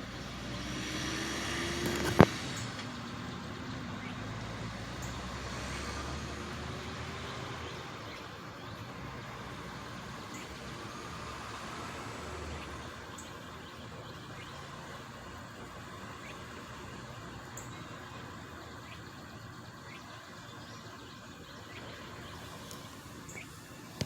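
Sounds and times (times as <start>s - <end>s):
truck engine pulling away: 0.0s - 24.0s.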